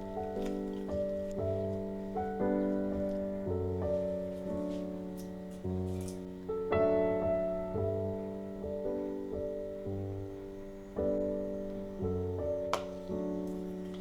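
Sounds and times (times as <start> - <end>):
slow solo piano: 0.0 - 14.0.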